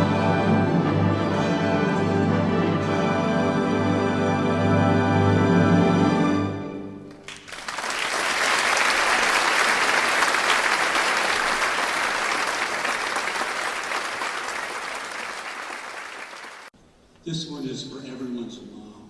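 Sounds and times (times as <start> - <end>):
audience applauding: 7.1 - 16.7.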